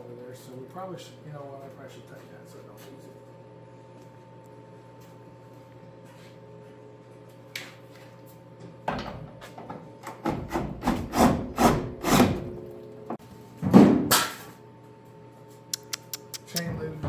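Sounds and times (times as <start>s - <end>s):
hand tool scraping strokes: 10.5s - 12.4s.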